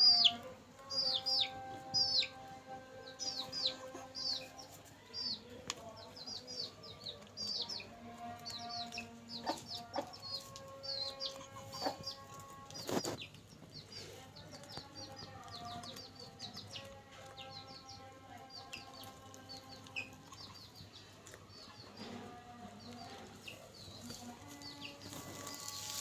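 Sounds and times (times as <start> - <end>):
chicks cheeping: 0.0 - 26.0.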